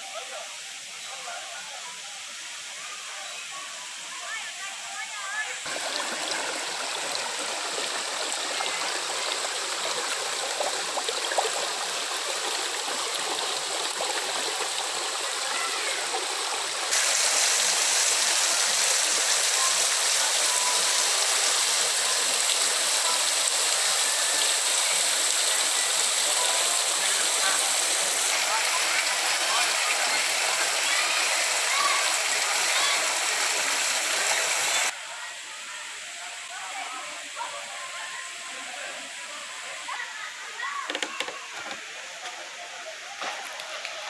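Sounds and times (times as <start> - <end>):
waterfall rushing: 5.6 - 34.9.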